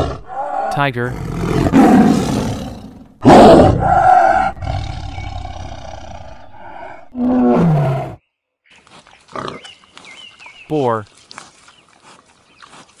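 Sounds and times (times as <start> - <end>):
tiger roaring and snarling: 0.0 - 8.2.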